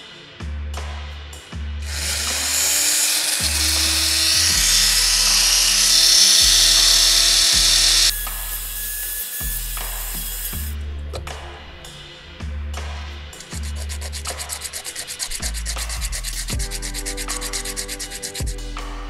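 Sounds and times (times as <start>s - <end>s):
background music with bass beat: 0.0s - 1.9s, 9.4s - 19.0s
rotary tool spinning: 1.8s - 10.8s, 13.4s - 18.5s.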